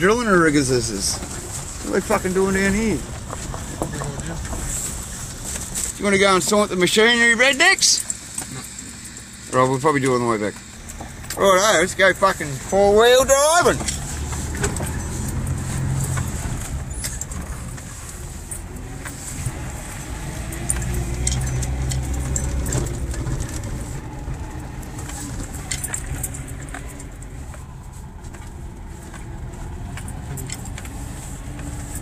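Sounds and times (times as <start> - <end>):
vehicle engine drone: 0.0 - 32.0
knocks and rattles: 13.5 - 27.7.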